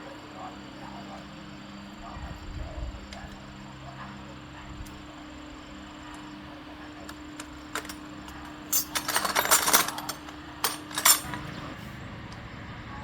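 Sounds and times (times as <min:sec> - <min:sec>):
metal parts clinking: 0:07.1 - 0:11.6.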